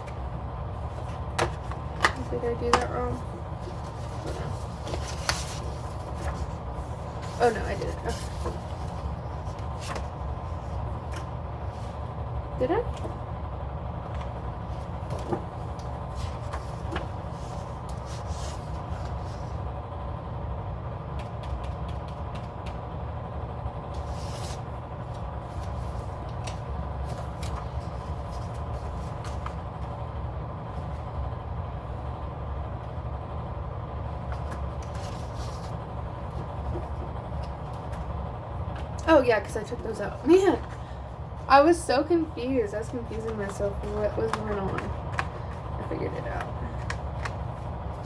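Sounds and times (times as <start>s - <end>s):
paper pages rustling: 0.0s - 12.1s, 14.0s - 19.7s, 23.9s - 30.0s, 34.0s - 39.0s, 42.8s - 48.0s.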